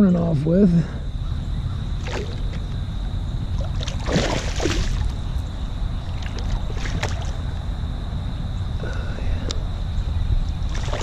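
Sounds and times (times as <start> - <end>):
low water rumble: 0.5 - 11.0
splashing rustle: 2.0 - 2.7, 3.5 - 5.3, 6.0 - 7.6, 10.6 - 11.0.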